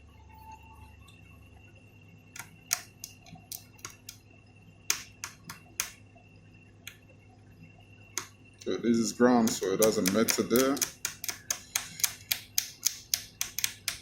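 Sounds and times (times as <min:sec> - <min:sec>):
faint high whine: 0:00.0 - 0:14.0
hand tools and wire clicking: 0:02.4 - 0:04.2, 0:09.4 - 0:14.0.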